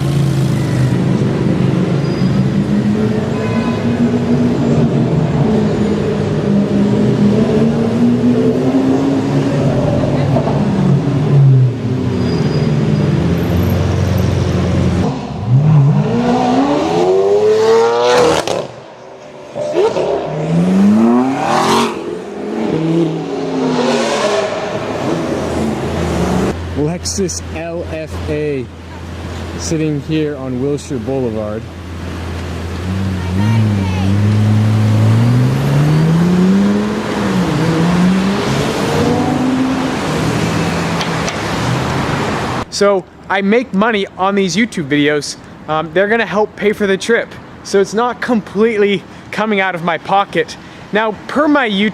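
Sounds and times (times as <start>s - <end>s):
car engine revving: 0.0s - 26.8s, 31.7s - 42.7s.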